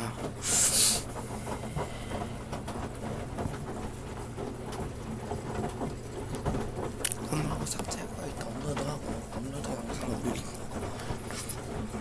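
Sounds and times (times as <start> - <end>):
washing machine humming: 0.0 - 12.0
short loud hiss: 0.4 - 1.0.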